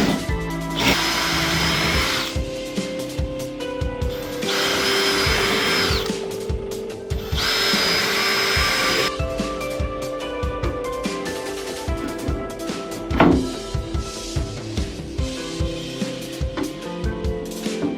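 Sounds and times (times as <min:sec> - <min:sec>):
electric power tool whining: 0:00.0 - 0:02.4, 0:04.1 - 0:06.2, 0:07.2 - 0:09.1
background music: 0:00.0 - 0:17.9.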